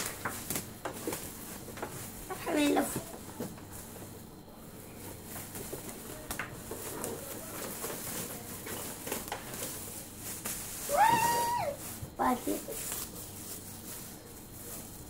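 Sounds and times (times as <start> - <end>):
young child squealing: 10.9 - 11.8.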